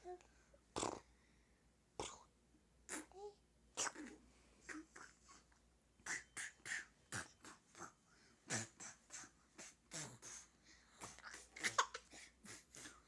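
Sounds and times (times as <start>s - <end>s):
playful mouth noises: 0.0s - 1.1s, 2.0s - 13.0s.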